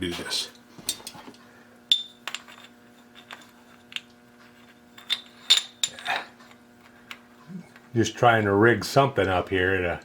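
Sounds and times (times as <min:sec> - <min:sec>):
faint steady hum: 0:00.0 - 0:10.0
metal objects clinking: 0:01.9 - 0:07.2.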